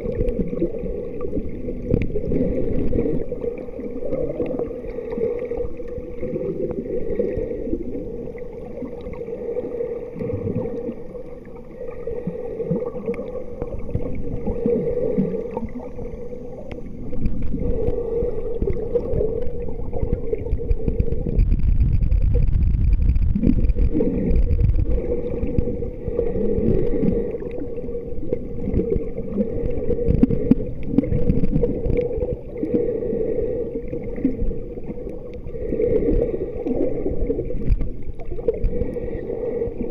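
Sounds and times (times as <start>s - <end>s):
muffled water sloshing and gurgling: 0.0s - 39.9s
steady hum: 0.0s - 39.9s
low rumble: 15.7s - 32.4s.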